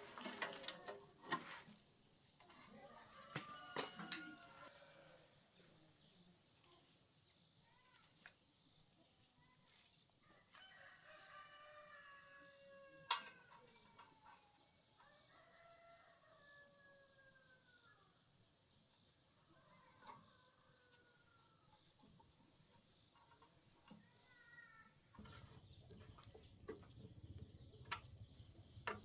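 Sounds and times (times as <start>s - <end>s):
distant rooster crowing: 2.7s - 5.3s, 10.2s - 13.6s, 15.0s - 18.0s, 19.6s - 21.8s.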